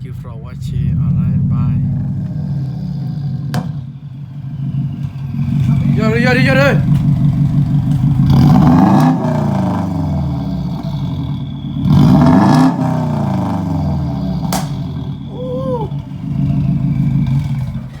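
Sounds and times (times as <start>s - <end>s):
car engine surging: 0.0s - 18.0s
short voice-like call: 15.3s - 16.0s.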